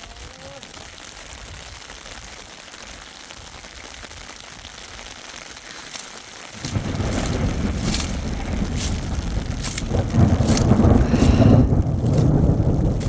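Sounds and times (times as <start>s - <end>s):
rain hissing: 0.0s - 13.0s
wind buffeting microphone: 6.6s - 13.0s.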